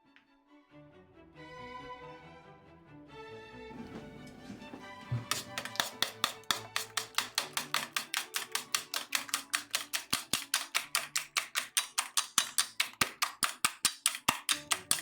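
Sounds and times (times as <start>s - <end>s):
rapid kitchen utensil clicks: 5.2s - 15.0s.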